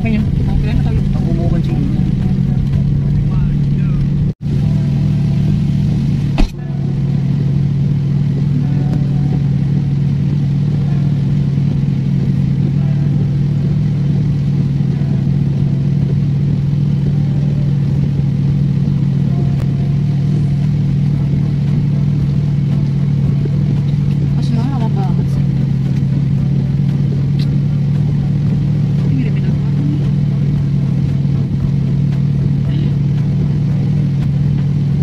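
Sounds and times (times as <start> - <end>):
car engine idling: 0.0 - 35.0
sharp knock: 6.4 - 6.6.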